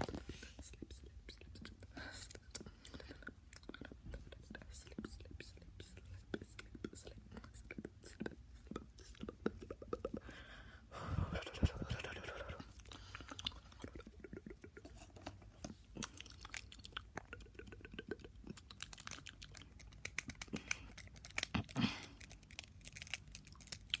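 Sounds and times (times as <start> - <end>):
tongue clicks and lip smacks: 0.1 - 10.3, 11.1 - 24.0
breathy sound: 10.2 - 13.4.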